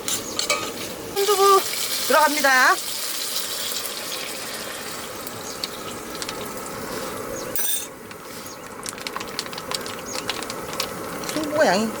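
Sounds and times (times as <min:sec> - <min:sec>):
food sizzling in a hot pot: 0:00.0 - 0:07.3
short metallic clink: 0:07.6 - 0:07.9.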